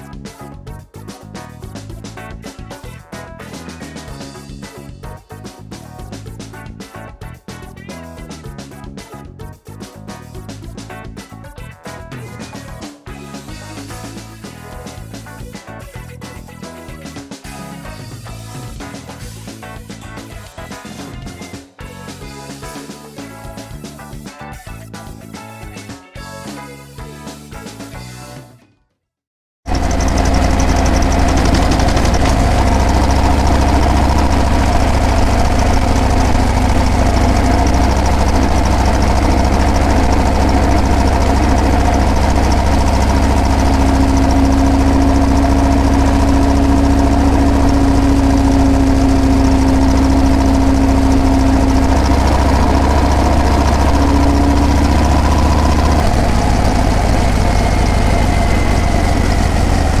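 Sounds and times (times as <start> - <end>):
motorcycle engine running: 29.7 - 60.0.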